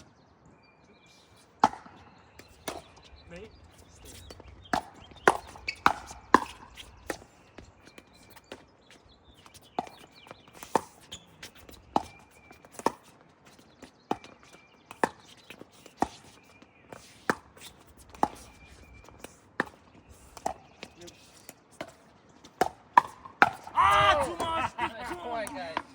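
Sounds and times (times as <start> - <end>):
ball bouncing: 1.6 - 3.0, 3.7 - 7.7
paddles hitting plastic ball: 3.8 - 7.3.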